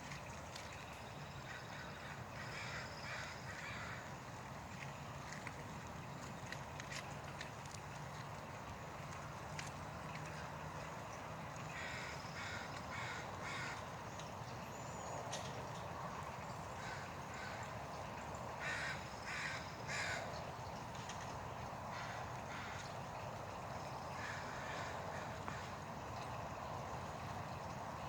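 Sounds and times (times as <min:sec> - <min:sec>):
crow cawing: 0:02.4 - 0:04.0, 0:11.8 - 0:13.8, 0:18.6 - 0:20.2.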